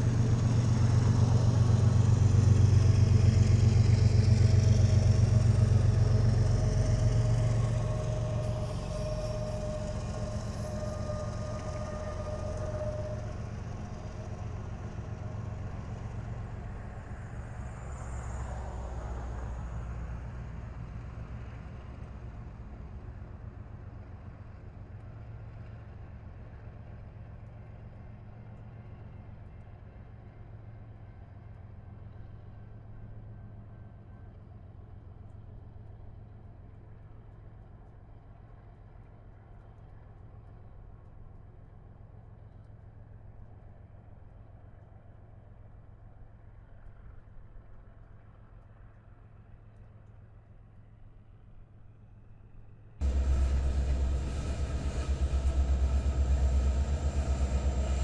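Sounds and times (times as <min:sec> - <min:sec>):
freight train rumbling: 0:00.0 - 0:30.4, 0:53.0 - 0:58.0
faint thin whine: 0:53.0 - 0:58.0.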